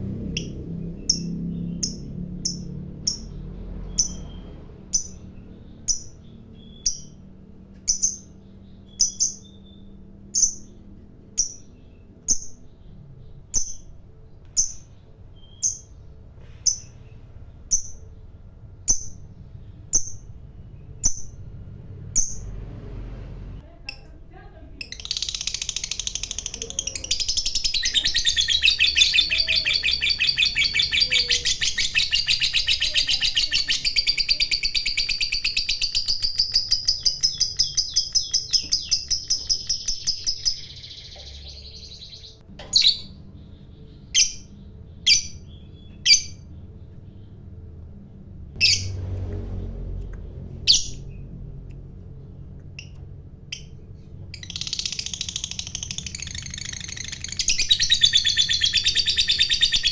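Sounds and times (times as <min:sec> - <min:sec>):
sharp bird chirps: 0:00.2 - 0:22.6, 0:24.9 - 0:47.3, 0:52.8 - 0:59.9
lovebird chattering trill: 0:24.8 - 0:46.5, 0:54.3 - 0:59.9.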